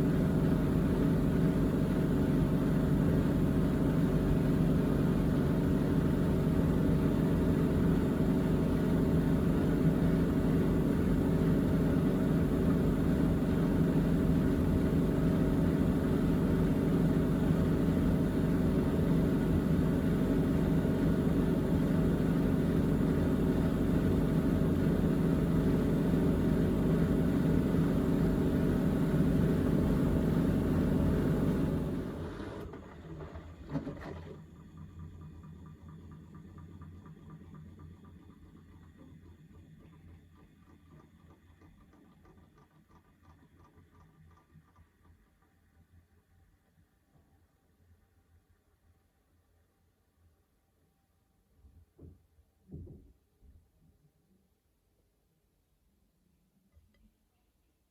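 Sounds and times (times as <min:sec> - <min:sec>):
washing machine spinning: 0:08.6 - 0:32.3.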